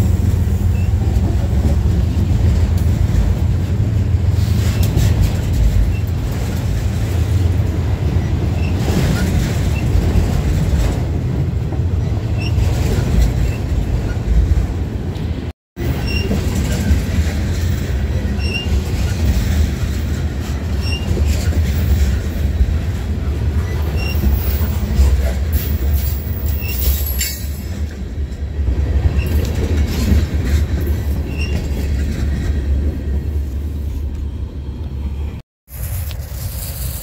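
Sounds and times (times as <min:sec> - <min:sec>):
train rumbling past: 0:00.0 - 0:37.0
wheel squeals: 0:00.6 - 0:01.2, 0:15.8 - 0:16.9, 0:18.3 - 0:18.8, 0:20.7 - 0:21.8, 0:23.6 - 0:27.7, 0:31.2 - 0:31.9.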